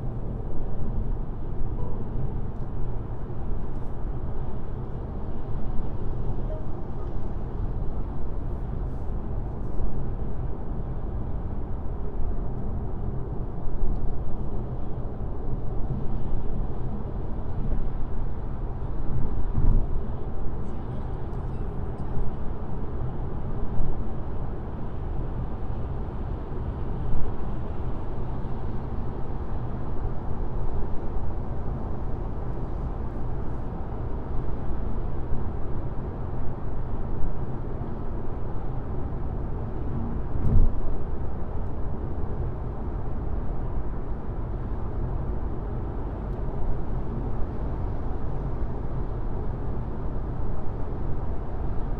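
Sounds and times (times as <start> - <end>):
brief thump: 40.4 - 40.8.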